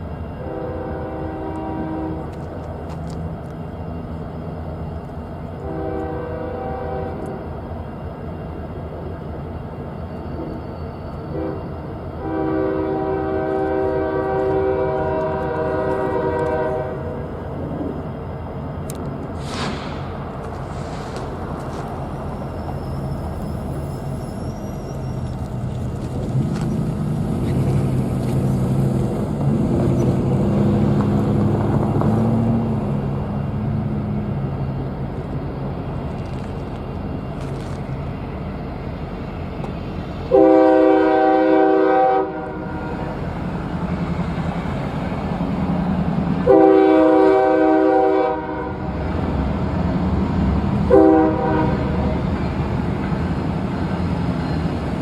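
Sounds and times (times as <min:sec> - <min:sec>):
diesel locomotive engine drone: 0:00.0 - 0:55.0
locomotive air horn blasts: 0:00.4 - 0:02.3, 0:05.6 - 0:07.4, 0:11.3 - 0:17.2, 0:40.3 - 0:43.1, 0:46.4 - 0:48.9, 0:50.9 - 0:52.1.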